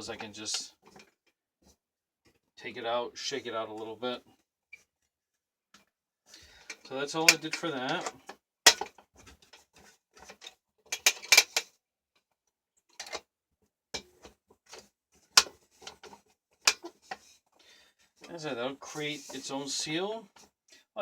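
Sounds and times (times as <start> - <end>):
vacuum cleaner handling clicks and knocks: 6.7 - 9.6, 10.2 - 11.7, 14.0 - 17.2.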